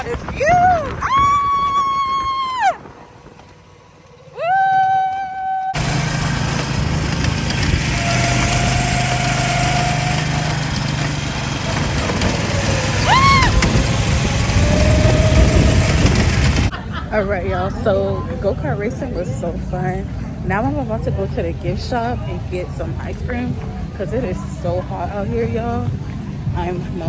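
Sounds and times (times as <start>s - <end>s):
go-kart engine running: 0.0s - 16.8s.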